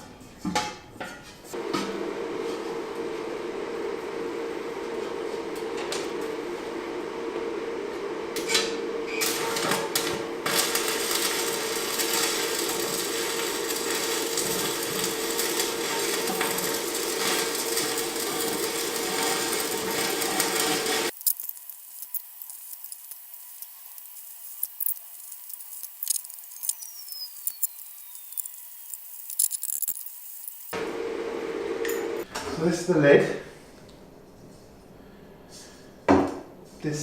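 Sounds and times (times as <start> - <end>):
power tool motor running: 8.4 - 21.2.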